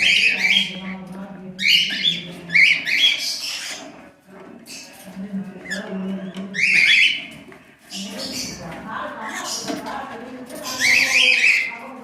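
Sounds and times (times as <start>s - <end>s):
cockatiel squawking: 0.0s - 0.7s, 1.6s - 3.8s, 6.6s - 7.3s.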